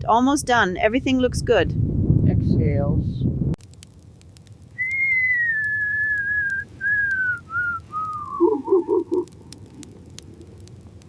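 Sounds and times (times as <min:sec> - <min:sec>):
faint crackling clicks: 0:03.6 - 0:11.0.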